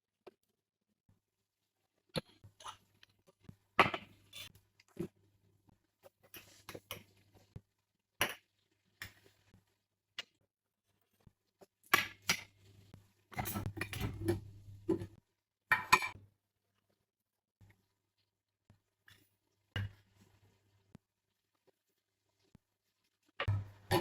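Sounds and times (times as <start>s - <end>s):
dishes and utensils clinking: 13.3s - 15.2s, 15.8s - 16.2s
dishes clattering: 13.4s - 15.2s.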